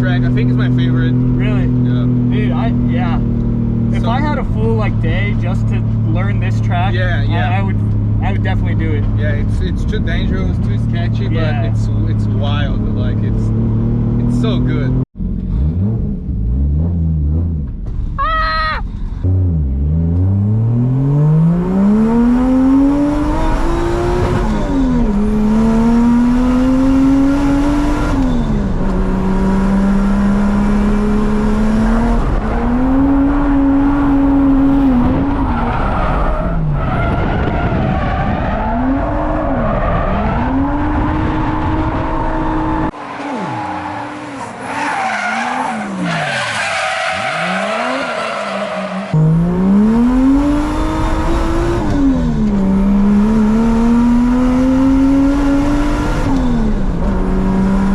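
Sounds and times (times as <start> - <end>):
car engine revving hard: 19.2 - 57.9
tyres skidding: 21.9 - 57.9.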